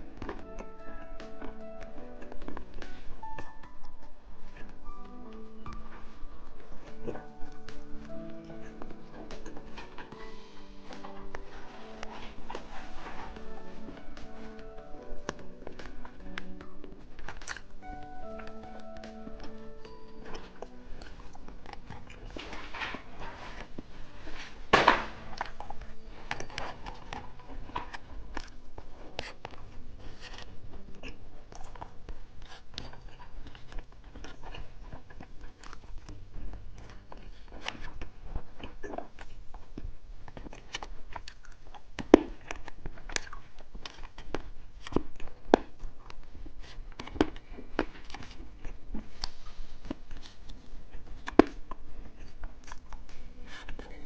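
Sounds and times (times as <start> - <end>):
crunching hard candy: 6.5 - 49.2.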